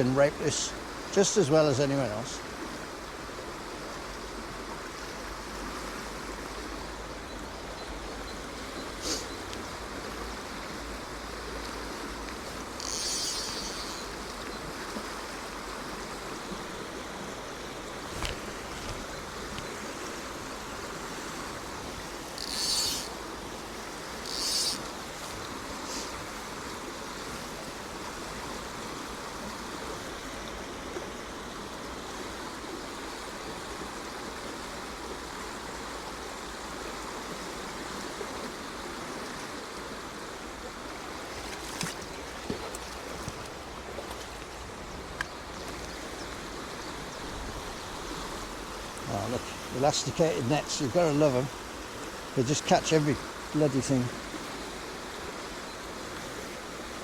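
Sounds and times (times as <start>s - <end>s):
stream rushing over rocks: 0.0s - 7.2s, 14.0s - 37.2s
brief high-pitched hisses: 9.0s - 9.3s.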